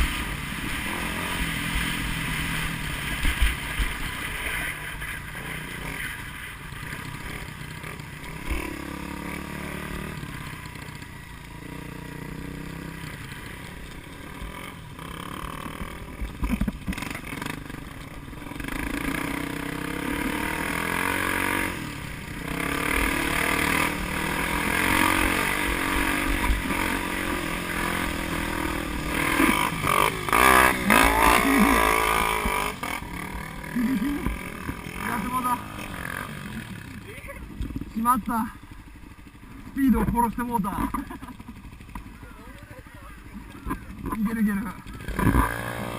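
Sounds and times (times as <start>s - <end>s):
vehicle engine revving under load: 18.4s - 37.0s, 43.6s - 45.9s.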